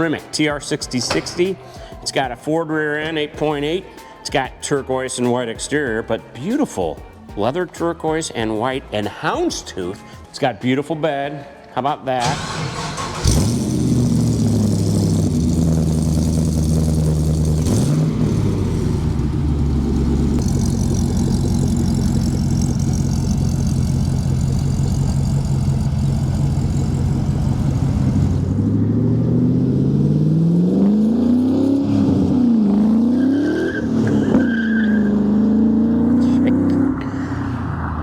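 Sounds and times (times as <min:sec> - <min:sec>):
car engine revving: 0:12.3 - 0:38.0.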